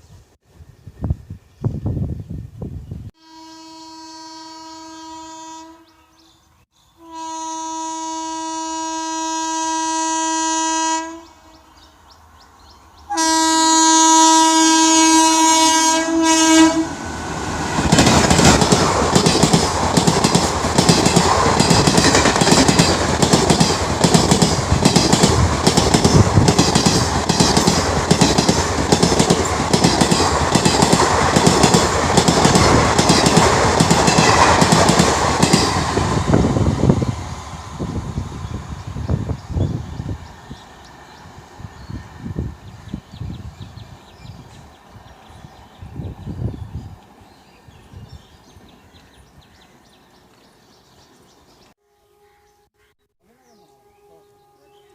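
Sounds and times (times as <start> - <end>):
locomotive horn blasts: 3.2 - 6.0, 7.0 - 11.7, 13.1 - 17.0
train wheels clattering over rail joints: 17.8 - 36.1.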